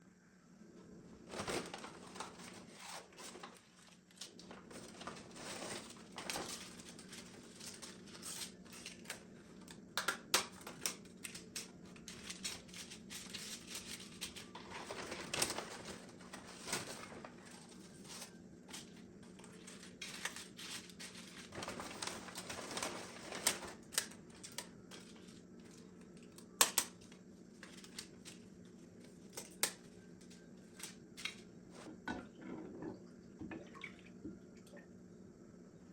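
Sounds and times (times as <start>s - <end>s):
rustling and crinkling: 1.1s - 31.9s.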